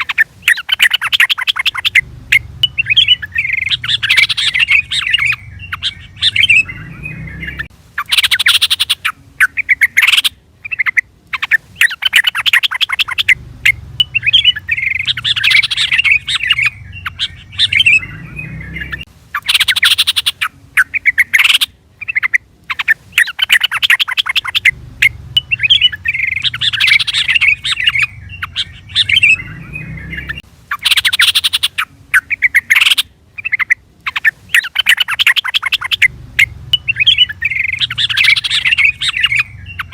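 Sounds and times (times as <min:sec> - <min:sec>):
bulbul chattering calls: 0:00.0 - 0:39.9.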